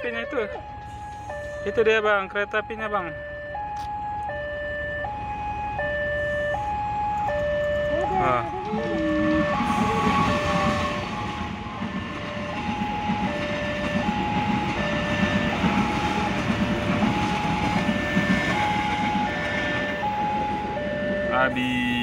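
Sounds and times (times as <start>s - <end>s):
two-tone crossing alarm: 0.0s - 22.0s
train wheels rumbling on rails: 7.1s - 22.0s.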